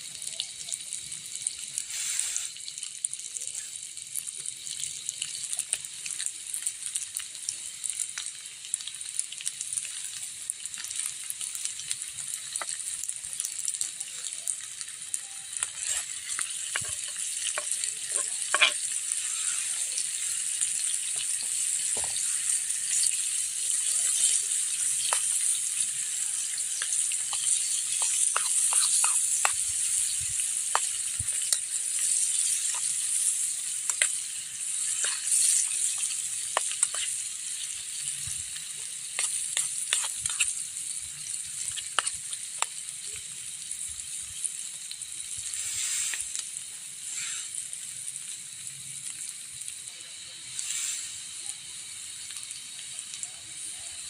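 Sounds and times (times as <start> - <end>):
food sizzling in hot oil: 0.0 - 54.0
stirring clicks and pops: 10.8 - 43.0.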